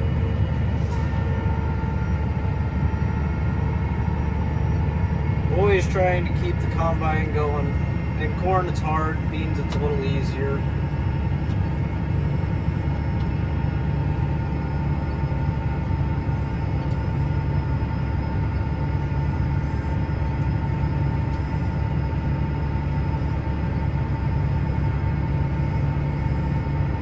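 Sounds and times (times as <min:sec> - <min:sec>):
combine harvester low drone: 0:00.0 - 0:27.0
steady high whine: 0:00.0 - 0:27.0.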